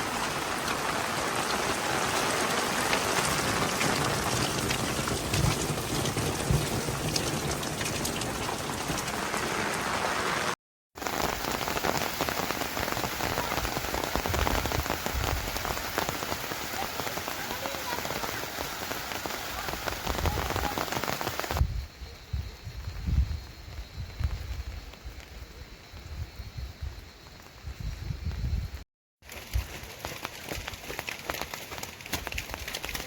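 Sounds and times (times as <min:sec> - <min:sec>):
steady rain falling: 0:00.0 - 0:21.6, 0:28.7 - 0:33.0.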